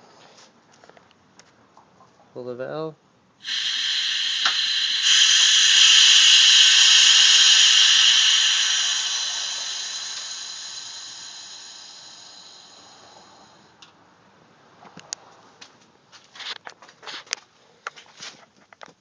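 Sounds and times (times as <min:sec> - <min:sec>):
compressed air hissing: 0:03.4 - 0:13.6.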